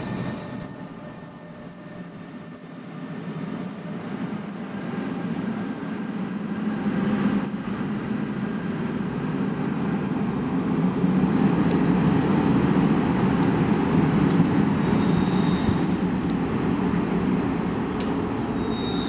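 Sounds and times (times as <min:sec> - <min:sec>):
high-pitched wheel squeal: 0:00.0 - 0:11.3, 0:14.8 - 0:16.7, 0:18.5 - 0:19.0
train rolling rumble: 0:00.0 - 0:19.0.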